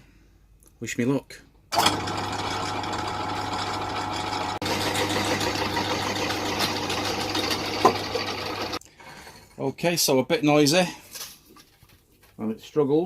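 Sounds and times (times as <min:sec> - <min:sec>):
pillar drill cutting steel: 0:01.8 - 0:08.8.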